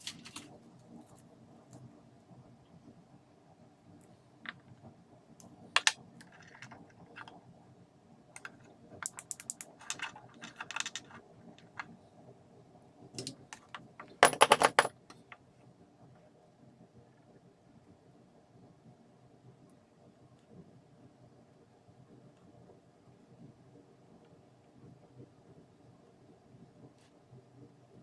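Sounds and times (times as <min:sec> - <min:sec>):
plastic and metal parts handled: 0:00.0 - 0:00.5, 0:08.4 - 0:11.8, 0:13.2 - 0:14.9.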